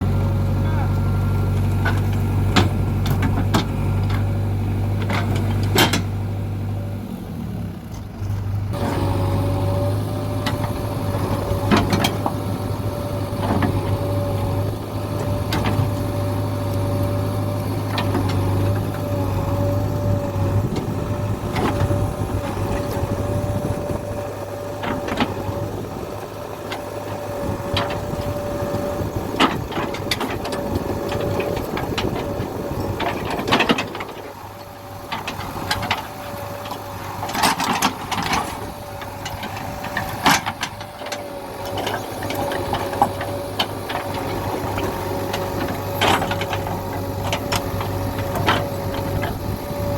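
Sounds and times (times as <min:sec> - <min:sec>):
diesel engine running: 0:00.0 - 0:49.9
knocks and clanks: 0:01.8 - 0:04.3, 0:26.7 - 0:34.2.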